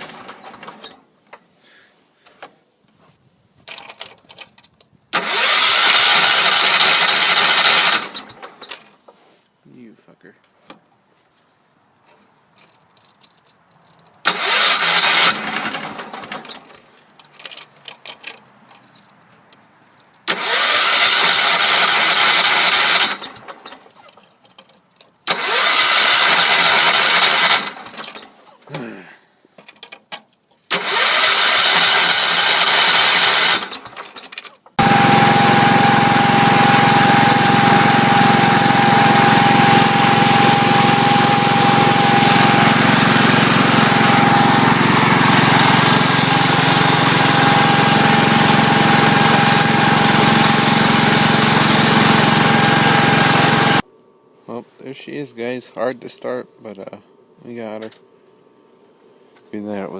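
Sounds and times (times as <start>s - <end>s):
engine cranking by starter: 0.0s - 1.1s, 3.7s - 9.1s, 14.2s - 18.5s, 20.2s - 28.9s, 30.7s - 53.8s
engine running: 5.1s - 8.6s, 14.2s - 16.6s, 25.2s - 28.2s, 30.7s - 34.0s, 34.7s - 53.8s.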